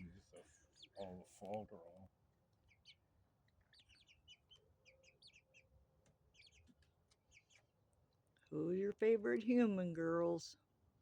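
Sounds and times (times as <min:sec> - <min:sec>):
chicks peeping softly: 0:00.0 - 0:08.5.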